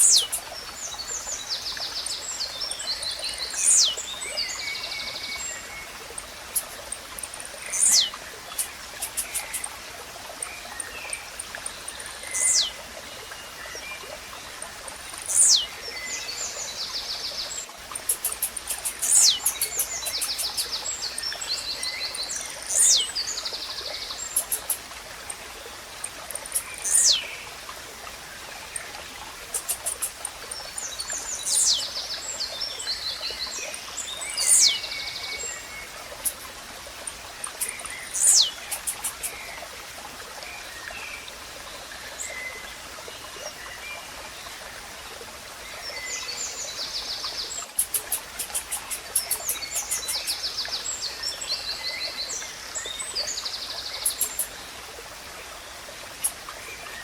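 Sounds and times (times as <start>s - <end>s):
small birds clicking trills: 0.0s - 12.9s, 14.5s - 15.8s, 17.6s - 27.4s, 28.6s - 39.7s, 47.6s - 50.8s, 53.8s - 54.6s, 56.1s - 57.0s.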